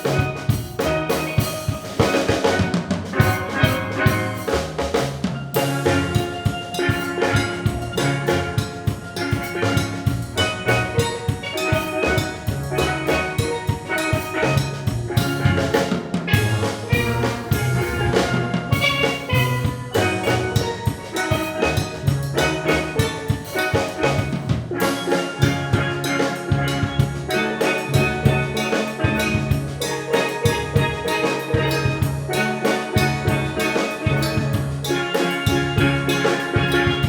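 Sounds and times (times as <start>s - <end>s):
drums keeping a beat: 0.0s - 37.0s
steel pan notes: 0.0s - 37.0s
low bass line: 7.4s - 8.6s, 9.6s - 11.1s, 16.4s - 20.6s.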